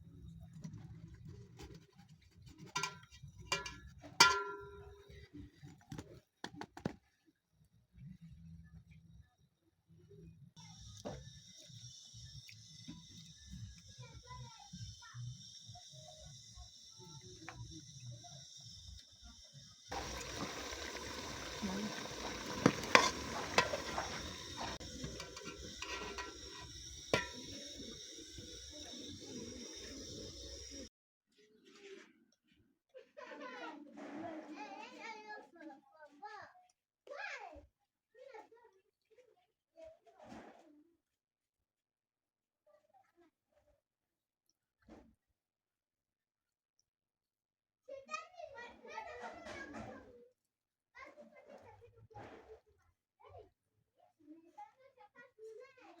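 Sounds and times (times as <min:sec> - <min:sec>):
kitchenware clinking: 0:02.8 - 0:05.1, 0:19.9 - 0:30.8
dough sizzling in hot oil: 0:10.6 - 0:30.9.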